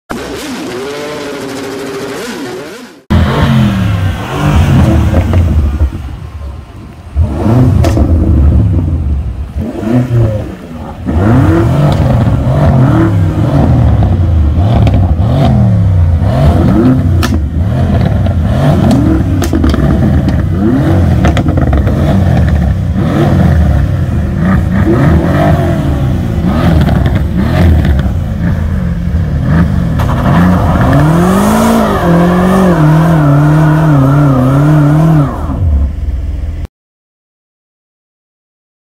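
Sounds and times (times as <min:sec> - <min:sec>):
car engines revving: 0:00.1 - 0:36.7
exhaust pops and crackles: 0:07.8 - 0:08.8, 0:13.8 - 0:15.2, 0:16.7 - 0:22.9, 0:26.6 - 0:28.8, 0:29.6 - 0:31.0.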